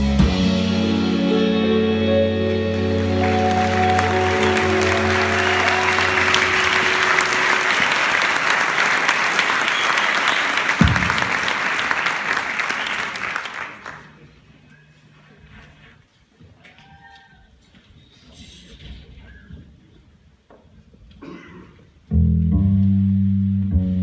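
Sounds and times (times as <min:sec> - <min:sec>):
audience applause: 0:02.4 - 0:14.2.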